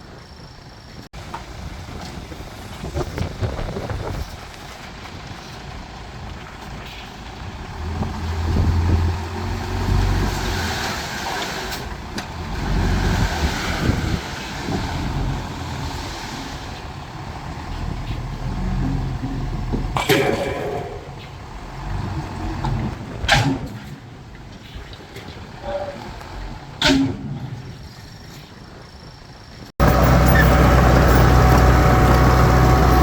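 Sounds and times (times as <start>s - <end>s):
heavy diesel machinery revving: 7.6s - 23.9s, 29.8s - 33.0s.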